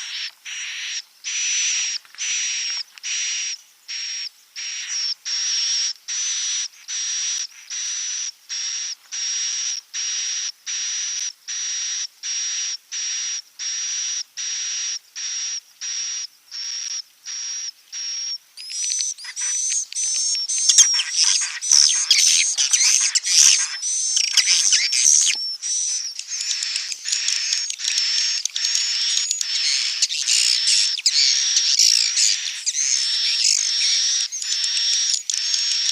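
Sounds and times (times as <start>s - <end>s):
high buzzy bird chirps: 0.0s - 10.8s, 11.5s - 35.9s
flock twittering: 18.0s - 35.9s.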